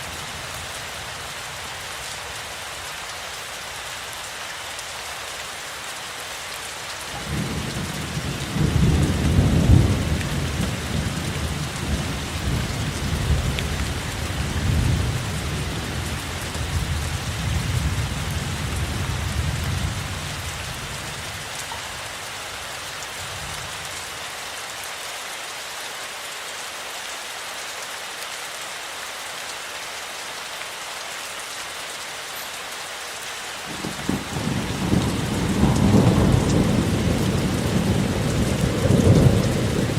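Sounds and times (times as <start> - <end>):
steady rain falling: 0.0 - 39.9
thunder rumbling: 33.7 - 39.9.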